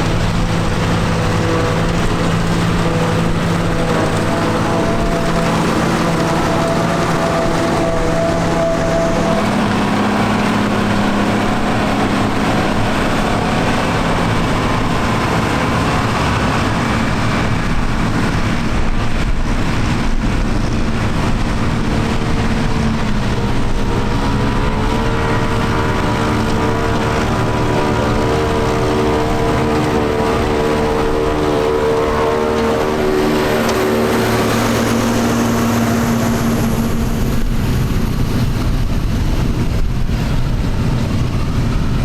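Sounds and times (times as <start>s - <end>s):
tractor engine running: 0.0s - 42.0s.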